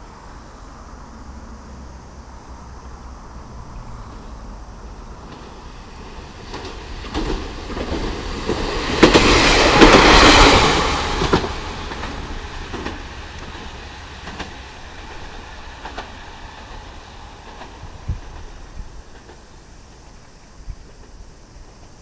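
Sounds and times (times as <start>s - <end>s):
train wheels clacking over rail joints: 4.8s - 22.0s.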